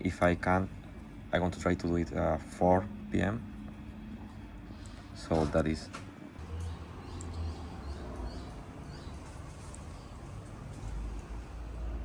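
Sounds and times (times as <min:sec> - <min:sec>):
steady low rumble: 0:00.0 - 0:05.3.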